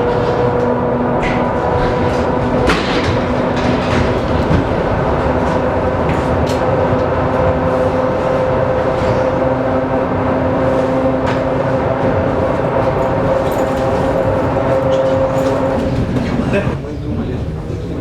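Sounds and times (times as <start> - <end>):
train rumble and hum: 0.0 - 18.0.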